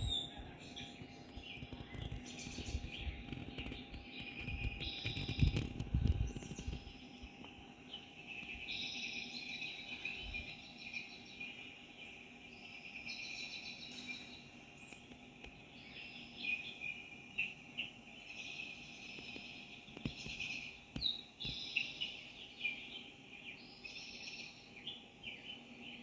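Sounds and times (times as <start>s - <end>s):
small animals chirping trills: 0.0s - 15.0s.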